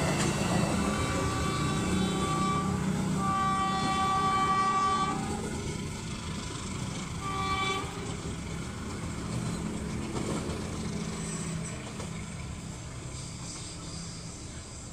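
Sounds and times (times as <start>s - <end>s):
train rumbling on track: 0.0s - 14.9s
train horn blast: 0.5s - 5.5s, 7.2s - 8.2s.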